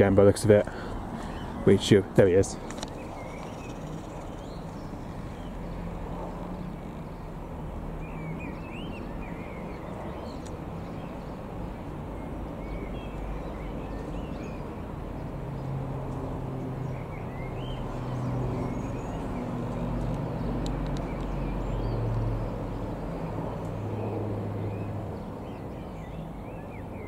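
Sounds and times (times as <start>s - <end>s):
small birds chirping: 0.0s - 27.0s
turboprop aircraft drone: 2.6s - 27.0s.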